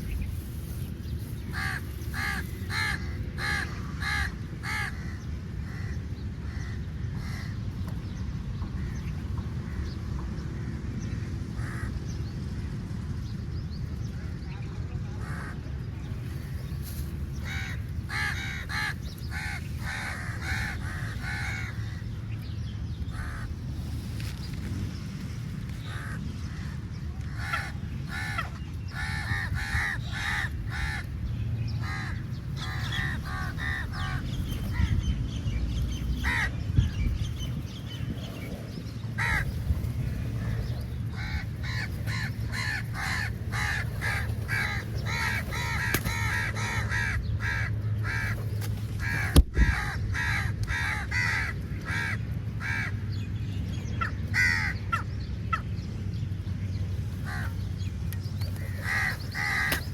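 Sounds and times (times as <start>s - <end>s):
crows cawing: 1.5s - 7.6s, 17.4s - 22.1s, 23.1s - 23.6s, 25.8s - 31.2s, 31.8s - 34.9s, 36.2s - 36.5s, 39.2s - 39.5s, 40.6s - 48.4s, 49.0s - 53.0s, 54.0s - 55.6s, 57.2s - 57.6s, 58.6s - 59.9s.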